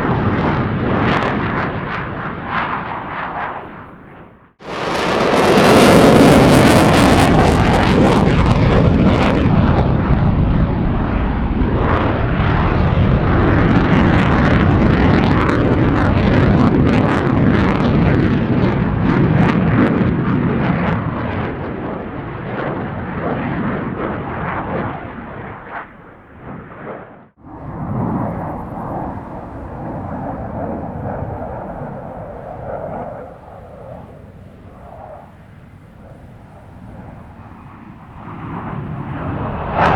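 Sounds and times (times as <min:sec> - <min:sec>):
jet engine afterburner roar: 0:00.0 - 0:39.9.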